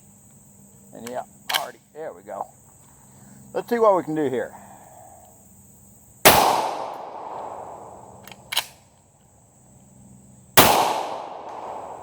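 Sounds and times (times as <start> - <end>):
pistol shots with echo: 6.3 - 8.0, 10.6 - 12.0.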